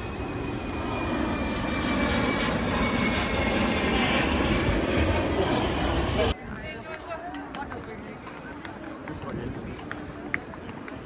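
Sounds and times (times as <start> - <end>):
airplane engine rumble: 0.0 - 6.4.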